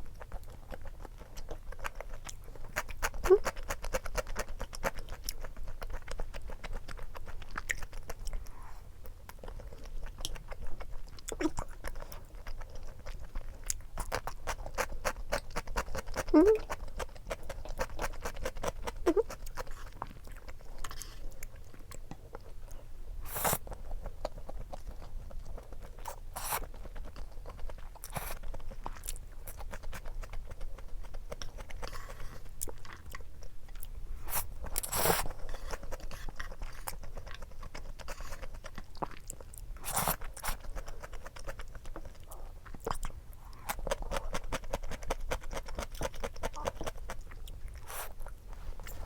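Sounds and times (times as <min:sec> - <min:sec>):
person chewing with crunchy bites: 0:00.0 - 0:49.0.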